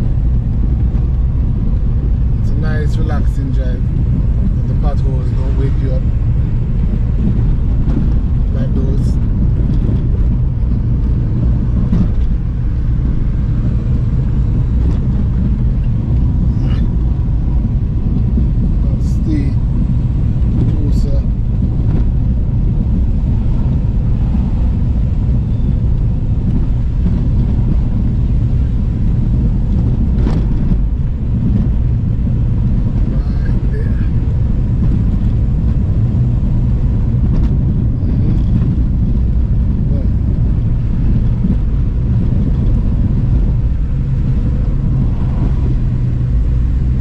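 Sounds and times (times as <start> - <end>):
car engine and tyre rumble: 0.0 - 47.0.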